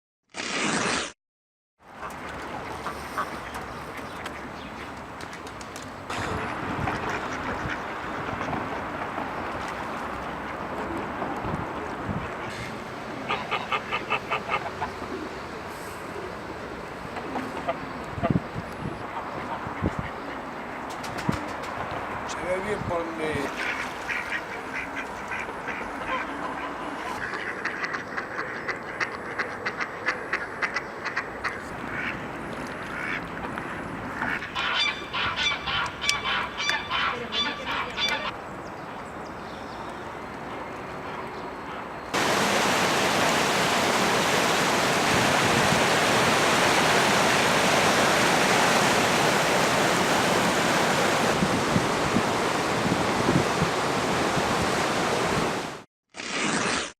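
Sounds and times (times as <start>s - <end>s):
ducks quacking: 2.0s - 4.6s, 6.1s - 9.0s, 12.3s - 15.2s, 23.5s - 32.2s, 32.8s - 38.3s
river water rushing: 42.2s - 55.8s.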